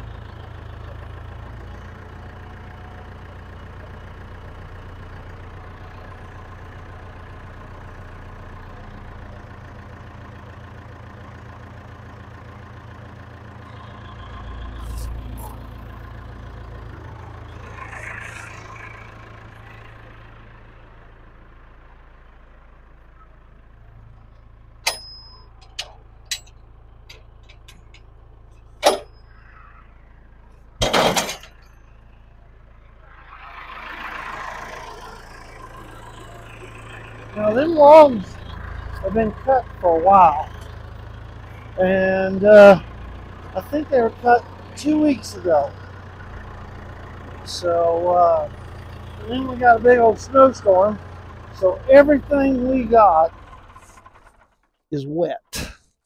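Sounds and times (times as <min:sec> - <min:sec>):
sawmill engine idling: 0:00.0 - 0:55.0
metallic knocks and clanks: 0:24.8 - 0:28.2, 0:28.8 - 0:29.3, 0:30.8 - 0:31.8.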